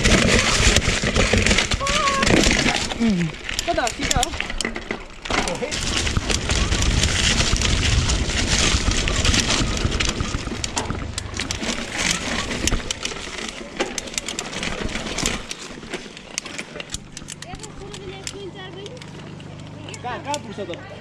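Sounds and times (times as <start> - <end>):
bike tyres crunching on gravel: 0.0 - 20.8
bike rattles and knocks: 0.0 - 21.0
heavy low rumble: 5.5 - 15.5.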